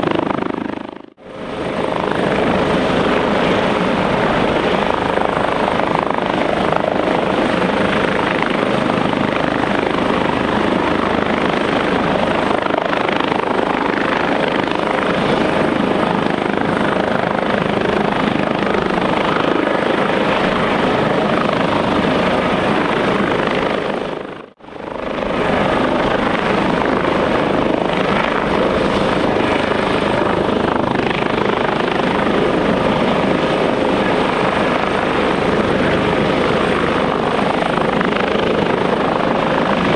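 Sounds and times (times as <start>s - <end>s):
helicopter rotor and turbine noise: 0.0s - 39.9s.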